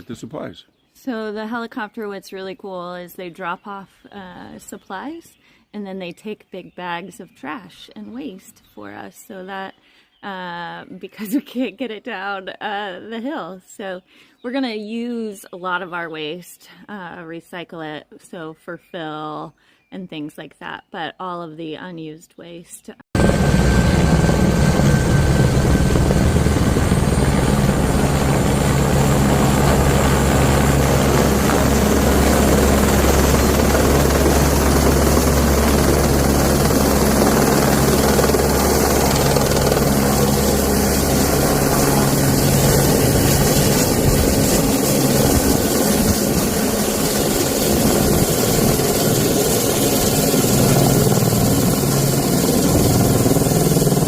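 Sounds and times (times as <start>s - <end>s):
helicopter rotor and engine: 23.2s - 54.0s.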